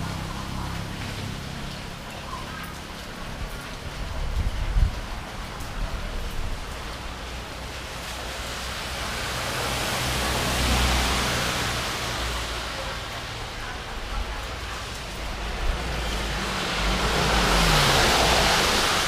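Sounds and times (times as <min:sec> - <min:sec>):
storm wind and rain: 0:00.0 - 0:19.0
wind buffeting microphone: 0:04.0 - 0:06.7.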